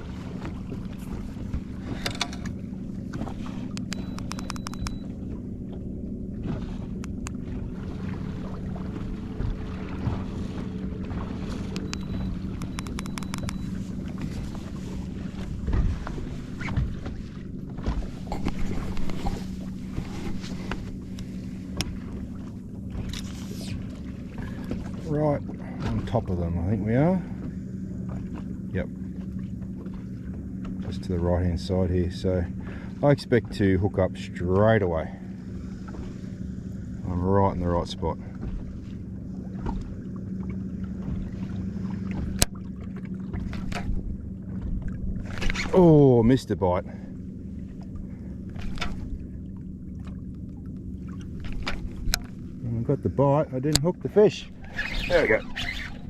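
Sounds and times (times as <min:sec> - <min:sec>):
steady low hum: 0:00.0 - 0:56.0
water slapping against hull: 0:00.0 - 0:56.0
sharp click: 0:03.7 - 0:05.0, 0:11.7 - 0:13.6.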